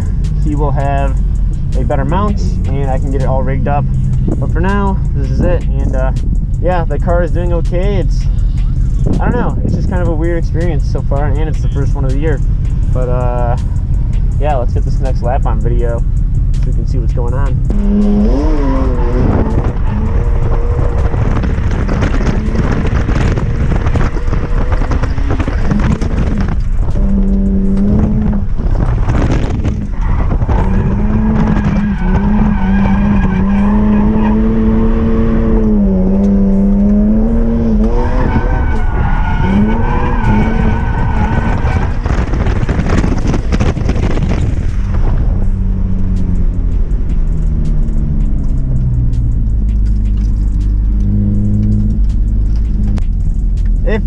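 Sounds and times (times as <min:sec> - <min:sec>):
car engine at high revs: 0:00.0 - 0:54.0
tyre squeal: 0:17.7 - 0:44.4.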